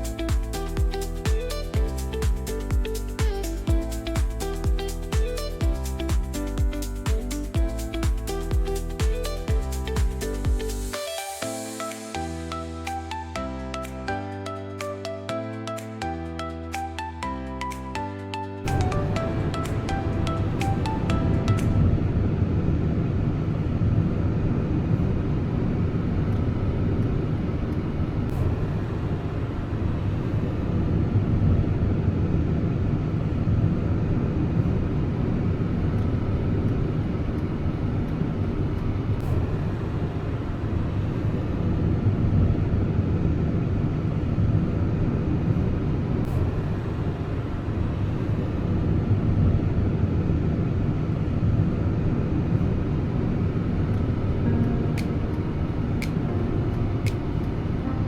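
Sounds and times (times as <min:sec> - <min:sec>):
car road and engine rumble: 0:18.7 - 0:58.0.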